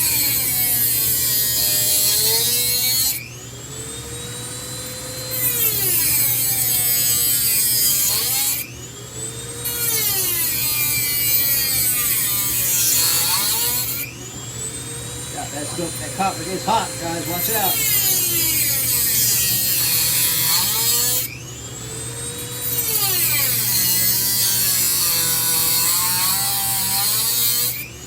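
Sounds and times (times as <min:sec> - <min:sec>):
rotary tool cutting copper: 0:00.0 - 0:28.0.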